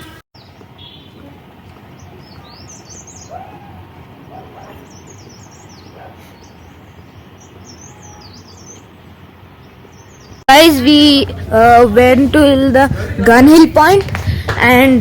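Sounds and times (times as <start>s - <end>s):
outdoor background hiss: 0.0s - 15.0s
small birds chirping: 0.4s - 11.2s.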